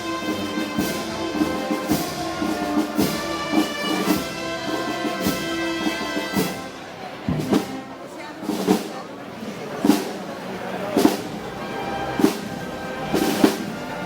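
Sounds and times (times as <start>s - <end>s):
brass chords: 0.0s - 7.9s, 11.0s - 14.0s.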